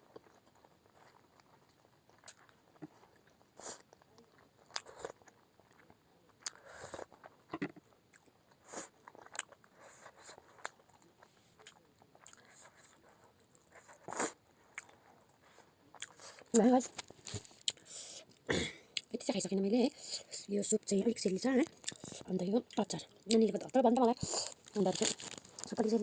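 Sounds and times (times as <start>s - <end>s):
person chewing and biting food: 0.1s - 13.0s, 15.9s - 16.4s, 21.7s - 22.3s, 24.2s - 25.7s.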